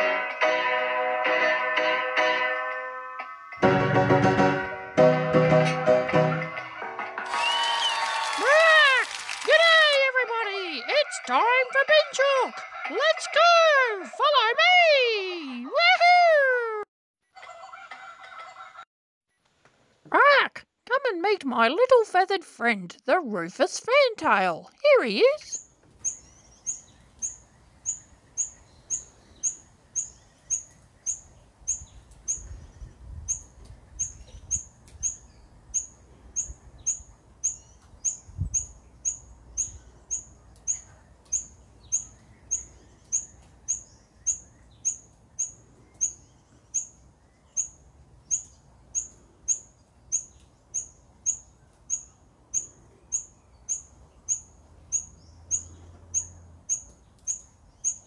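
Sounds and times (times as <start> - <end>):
bird calling high chips: 25.4 - 32.5, 33.3 - 58.0.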